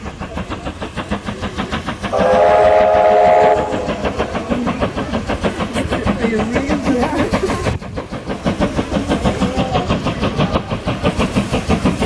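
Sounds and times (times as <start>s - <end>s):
steam locomotive chuffing: 0.0s - 12.0s
steam whistle blast: 2.1s - 3.9s.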